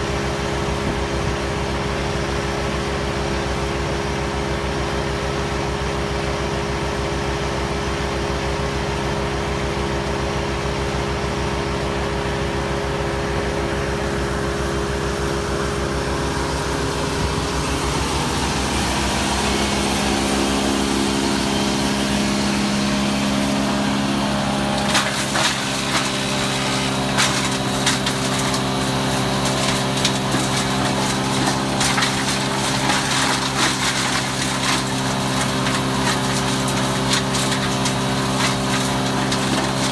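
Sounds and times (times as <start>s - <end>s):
wood chipper engine running: 0.0s - 39.9s
branches cracking and splintering: 24.6s - 39.9s.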